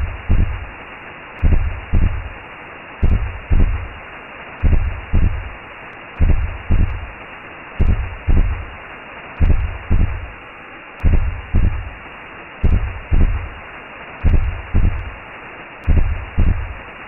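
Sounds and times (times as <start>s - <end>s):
slow heartbeat thumps: 0.0s - 0.8s, 1.4s - 2.4s, 3.0s - 4.0s, 4.6s - 5.6s, 6.2s - 7.2s, 7.8s - 8.8s, 9.4s - 10.4s, 11.0s - 12.0s, 12.6s - 13.6s, 14.2s - 15.2s, 15.8s - 16.8s
muffled whooshing hiss: 0.0s - 17.0s.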